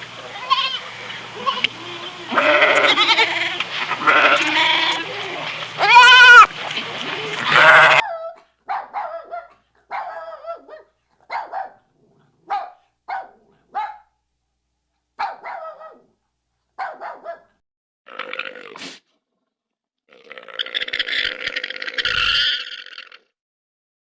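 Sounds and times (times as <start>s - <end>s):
dog barking: 8.0s - 14.2s, 15.2s - 16.2s, 16.8s - 17.6s.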